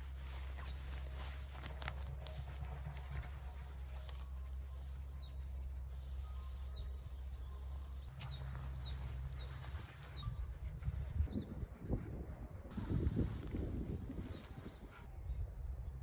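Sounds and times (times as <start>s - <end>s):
small bird chirping: 4.7s - 11.5s.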